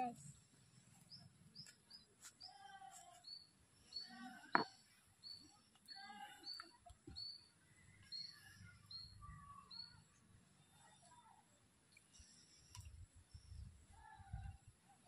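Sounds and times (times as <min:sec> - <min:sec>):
birds chirping: 0:03.2 - 0:10.7.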